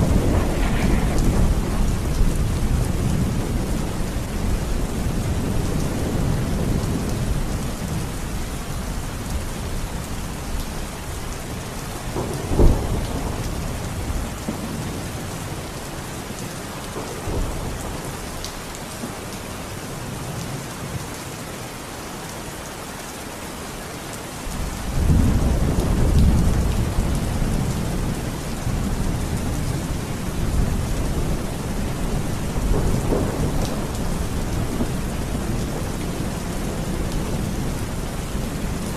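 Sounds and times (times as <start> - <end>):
sharp thunderclap: 0.0 - 4.0, 12.1 - 15.0, 32.1 - 37.5
rolling thunder: 0.0 - 8.1, 12.0 - 15.7, 24.5 - 38.9
heavy rain hissing: 0.0 - 22.0.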